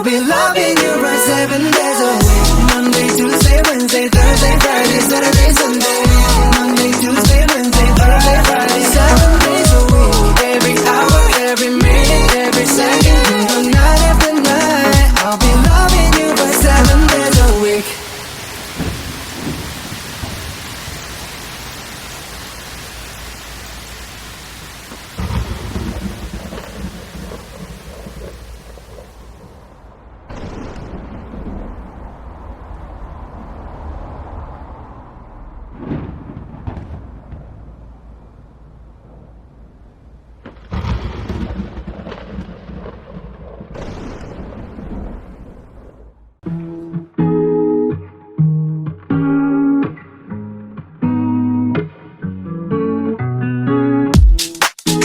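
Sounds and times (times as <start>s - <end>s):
steady rain falling: 1.7s - 35.8s
thunder rumbling: 15.0s - 46.3s.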